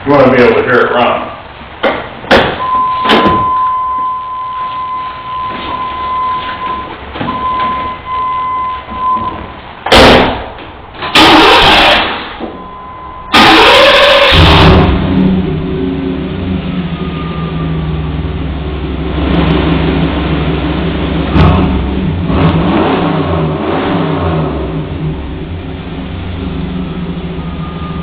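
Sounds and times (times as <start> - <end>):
electronic warning chime: 2.6 - 9.4
short beeps: 2.6 - 9.6, 12.5 - 13.3
loud noisy bursts: 11.0 - 12.4, 13.3 - 15.5
car engine running loudly: 11.0 - 12.5, 13.3 - 28.0.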